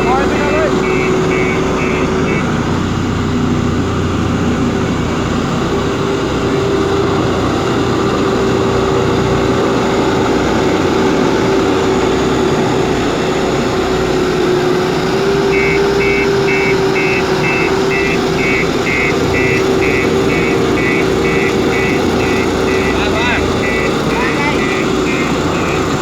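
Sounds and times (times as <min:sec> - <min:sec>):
reversing alarm beeps: 0:00.0 - 0:02.6, 0:15.4 - 0:26.0
diesel engine running: 0:00.0 - 0:26.0.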